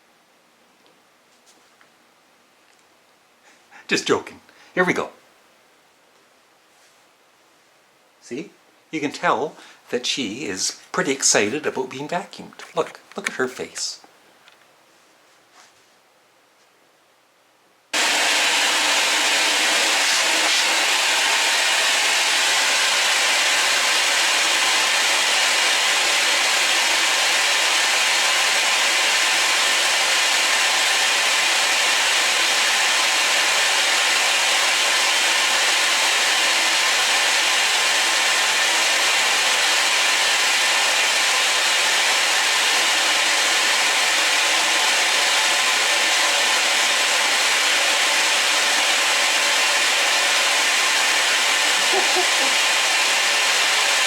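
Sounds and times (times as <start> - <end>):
vacuum cleaner running: 18.0 - 54.0.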